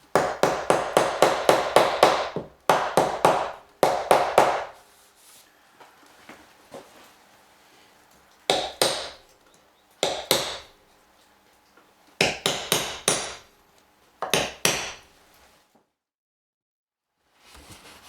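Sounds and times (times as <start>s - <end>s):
hammer driving nails into wood: 0.1s - 4.8s, 8.5s - 9.2s, 10.0s - 10.7s, 12.2s - 13.5s, 14.2s - 15.0s.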